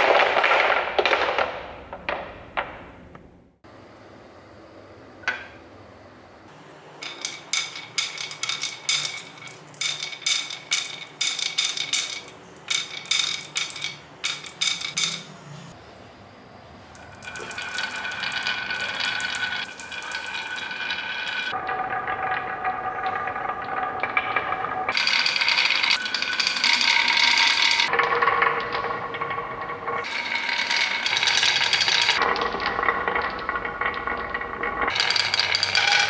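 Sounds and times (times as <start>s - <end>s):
small hard objects clinking: 7.0s - 15.3s, 17.0s - 21.5s, 30.0s - 32.3s, 34.9s - 36.0s.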